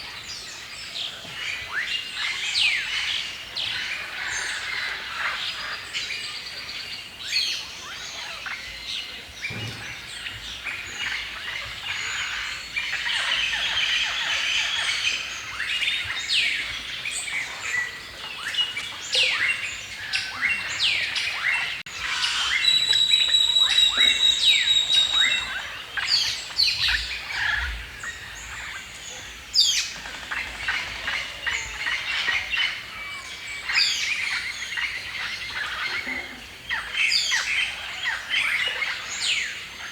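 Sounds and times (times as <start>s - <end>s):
birds chirping and singing: 0.1s - 39.7s
bird high whistled notes: 22.1s - 25.6s.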